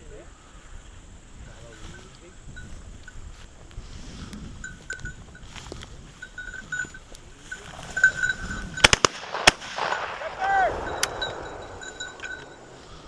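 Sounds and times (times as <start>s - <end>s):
faint high ringing tone: 4.6s - 8.8s, 10.5s - 13.0s
sharp clicks: 8.8s - 12.7s.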